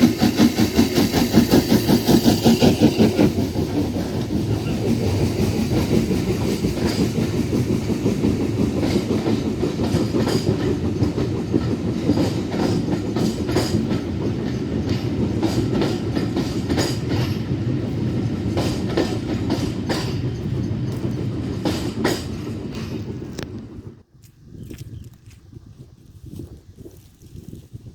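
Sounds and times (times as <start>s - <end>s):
wheels clicking over rail joints: 0.0s - 23.7s
train rolling past: 0.0s - 24.1s.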